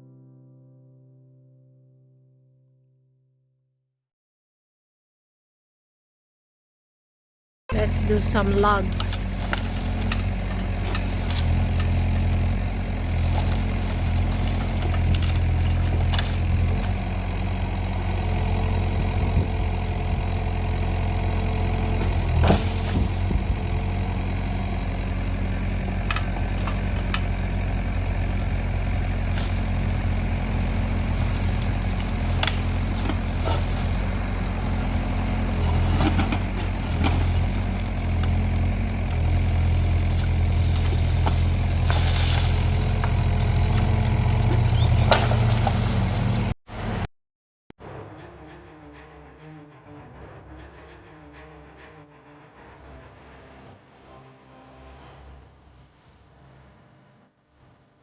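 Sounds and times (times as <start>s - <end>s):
grab knocking logs: 7.7s - 19.8s, 20.7s - 46.5s
excavator diesel engine running: 7.7s - 47.0s.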